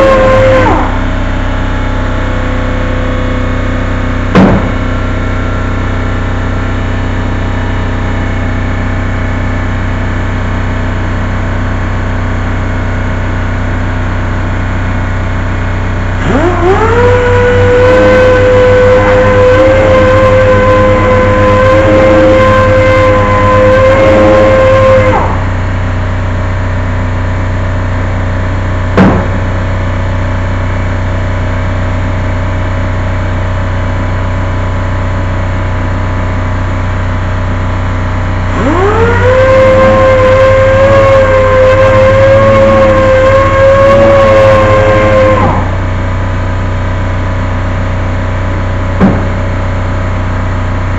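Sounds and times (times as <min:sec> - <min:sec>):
power tool motor whining: 0:00.0 - 0:01.1, 0:16.2 - 0:25.6, 0:38.5 - 0:45.8
steady low hum: 0:00.0 - 0:39.0, 0:39.8 - 0:50.9.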